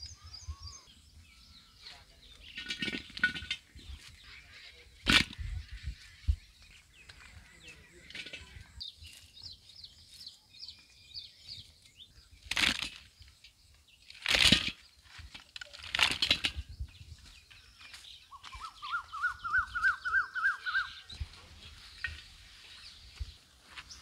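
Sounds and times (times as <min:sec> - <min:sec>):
birds chirping: 0:00.0 - 0:24.0
bird repeated rising-and-falling notes: 0:18.4 - 0:21.0.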